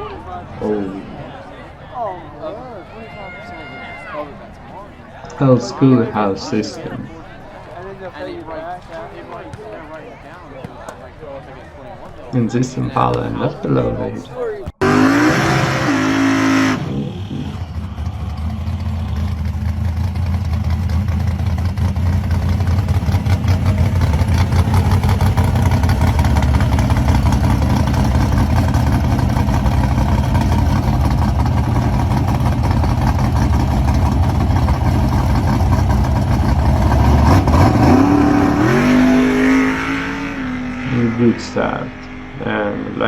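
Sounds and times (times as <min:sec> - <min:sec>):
car engine idling with deep rumble: 0:17.0 - 0:38.6.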